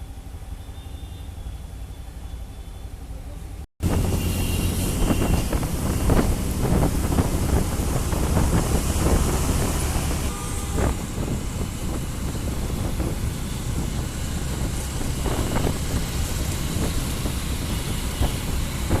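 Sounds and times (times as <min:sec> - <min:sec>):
vehicle low rumble: 0:00.0 - 0:19.0
rushing wind noise: 0:03.8 - 0:19.0.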